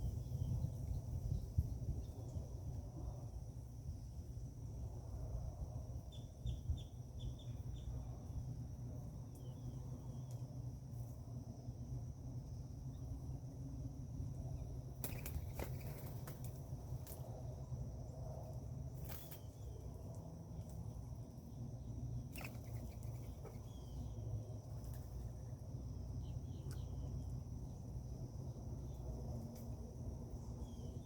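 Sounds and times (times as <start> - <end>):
low background rumble: 0.0 - 31.0
high insect drone: 0.1 - 31.0
faint bird chirps: 6.1 - 8.4, 22.3 - 25.5, 30.4 - 31.0.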